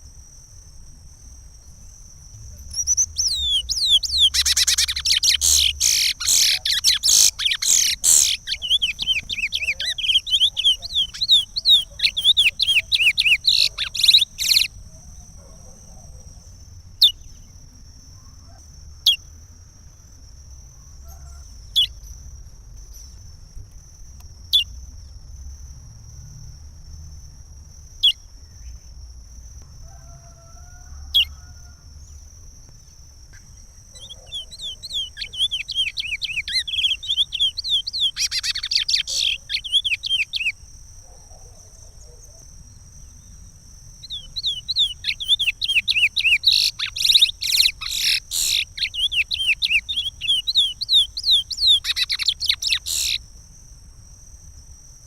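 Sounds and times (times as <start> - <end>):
finch singing: 2.7 - 14.8, 33.9 - 40.6, 44.0 - 53.2.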